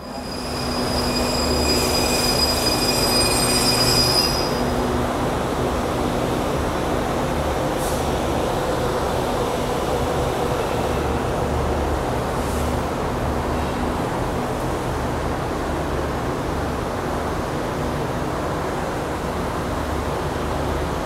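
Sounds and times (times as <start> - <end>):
metallic wheel squeal: 0.0 - 4.8
train rumbling on track: 0.0 - 21.0.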